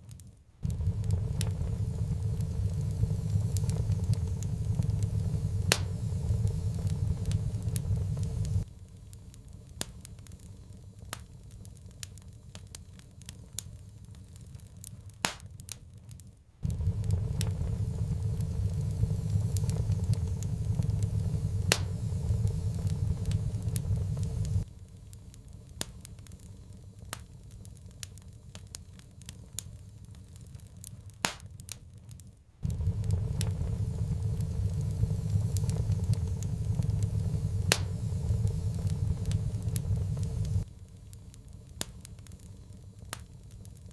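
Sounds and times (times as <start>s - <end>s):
wood fire crackling: 0.0s - 43.9s
low rumble: 0.6s - 8.7s, 16.6s - 24.7s, 32.6s - 40.8s.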